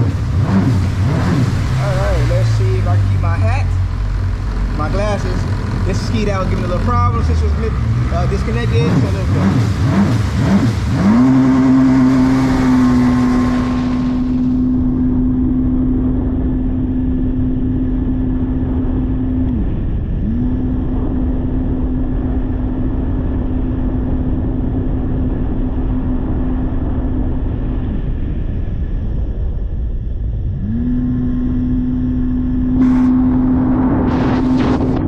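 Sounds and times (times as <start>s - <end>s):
rushing noise: 0.0s - 15.4s, 32.6s - 35.0s
jet ski engine running: 0.0s - 35.0s.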